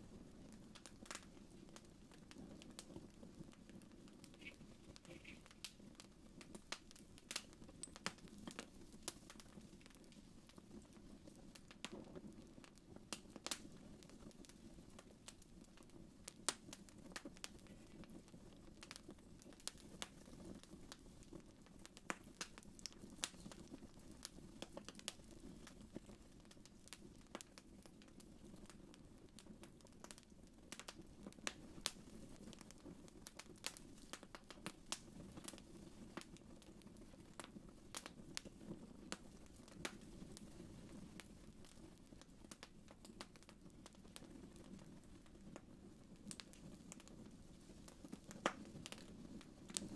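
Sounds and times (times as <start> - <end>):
wood fire crackling: 0.0 - 49.9.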